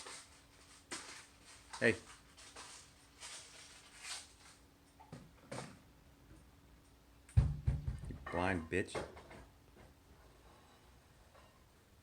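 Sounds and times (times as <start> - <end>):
loud low thump: 7.4 - 8.2.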